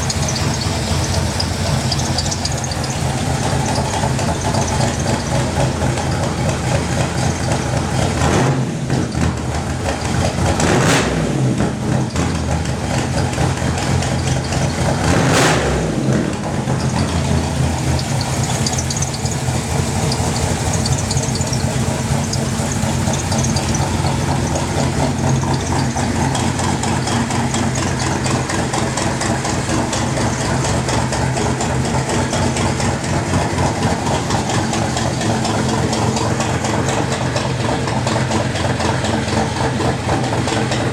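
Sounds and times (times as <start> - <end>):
truck engine idling: 0.0 - 40.9.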